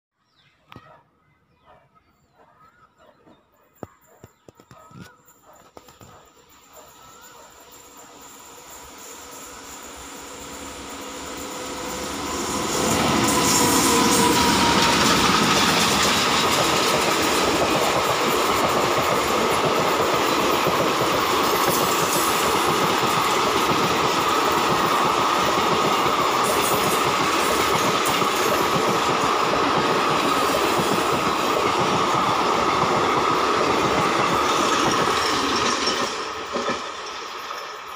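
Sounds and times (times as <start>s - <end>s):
coaches clickety-clack: 3.8s - 6.3s
rush of wheels on rail: 5.7s - 37.9s.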